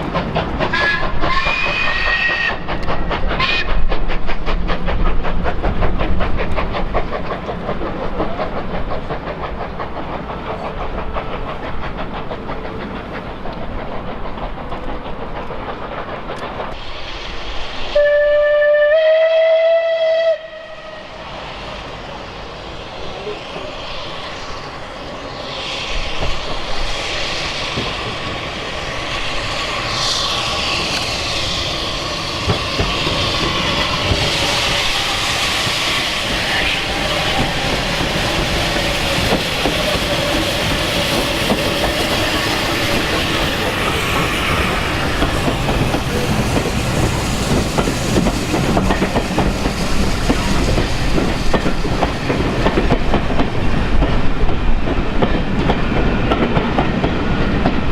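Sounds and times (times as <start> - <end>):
train wheels clattering over rail joints: 0.0 - 17.0, 27.4 - 57.9
steam locomotive whistle: 0.7 - 2.7, 3.4 - 3.8, 17.9 - 21.2.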